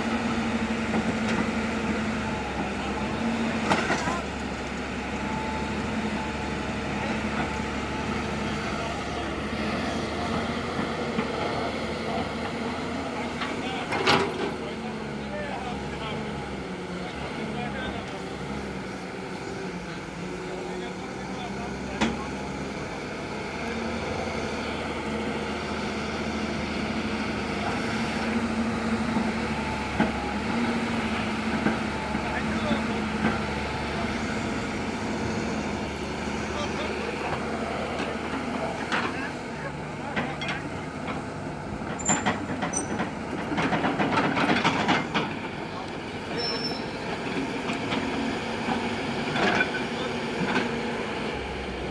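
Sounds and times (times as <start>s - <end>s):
diesel engines droning: 0.0s - 51.9s.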